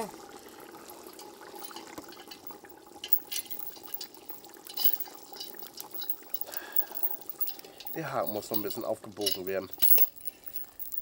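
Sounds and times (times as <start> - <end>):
soup bubbling in a pot: 0.0 - 8.2
fire crackling: 0.0 - 11.0.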